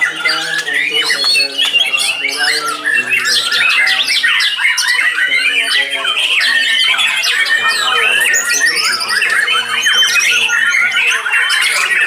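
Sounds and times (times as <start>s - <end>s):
songbirds whistling and trilling: 0.0s - 12.0s.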